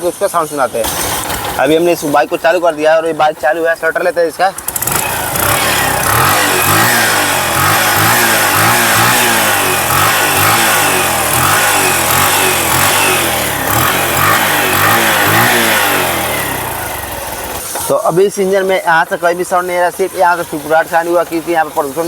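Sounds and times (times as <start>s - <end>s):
exhaust puffing: 0.0s - 22.0s
motorcycle engine revving: 0.7s - 22.0s.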